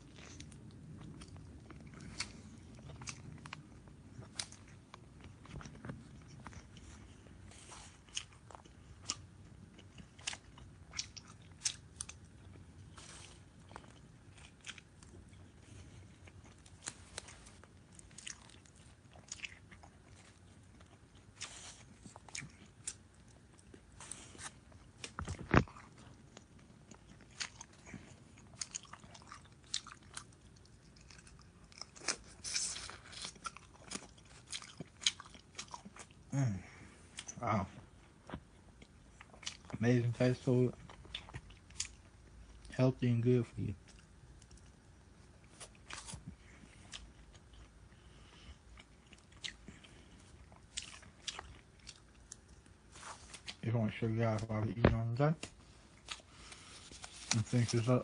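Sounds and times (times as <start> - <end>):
person chewing food: 0.0 - 42.8, 43.7 - 53.6, 54.4 - 57.9.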